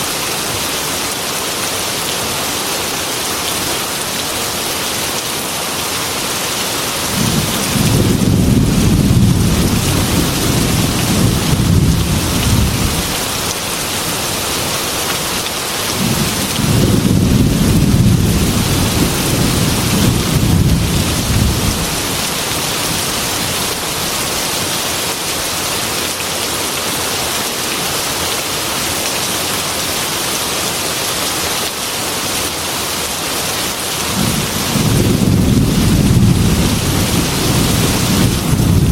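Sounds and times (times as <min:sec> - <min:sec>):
heavy rain falling: 0:00.0 - 0:38.9
low rolls of thunder: 0:07.2 - 0:13.1, 0:16.0 - 0:22.1, 0:34.2 - 0:38.9.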